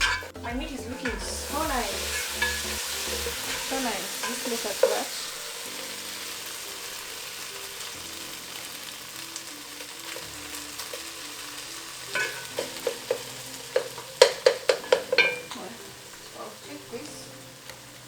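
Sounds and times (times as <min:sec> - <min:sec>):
meat sizzling in a pot: 0:00.0 - 0:18.0
spoon scraping a pot: 0:01.9 - 0:05.2, 0:12.1 - 0:15.7.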